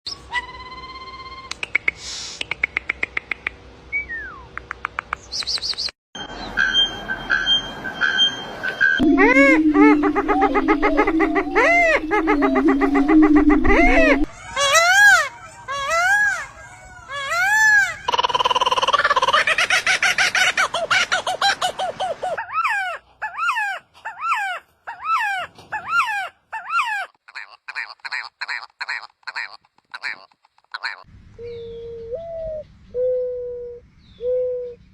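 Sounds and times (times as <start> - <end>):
bird high trill: 6.2 - 16.8
bird downward-sliding whistle: 8.8 - 14.3
bird repeated calls: 9.0 - 19.4.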